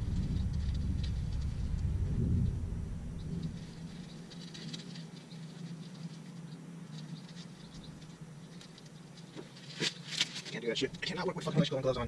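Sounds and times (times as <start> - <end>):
low rumble: 0.0 - 4.2
steady low hum: 0.0 - 12.0
clicks and rustles of handling wiring: 3.3 - 11.2.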